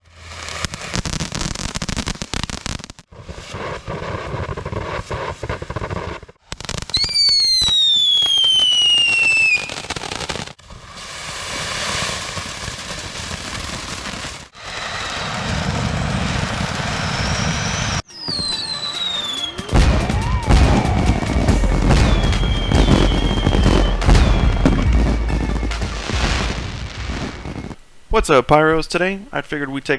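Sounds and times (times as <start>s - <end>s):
falling whistle: 6.9s - 10.0s, 17.0s - 27.8s
fountain fireworks hissing: 6.9s - 29.1s
dense crackling: 18.1s - 29.9s.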